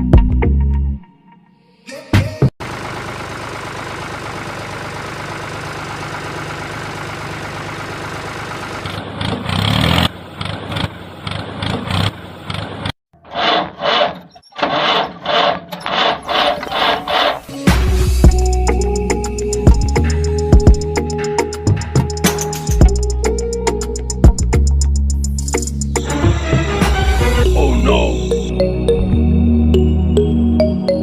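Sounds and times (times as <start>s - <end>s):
small engine running: 2.6s - 17.5s
short mechanical bursts: 13.3s - 17.6s.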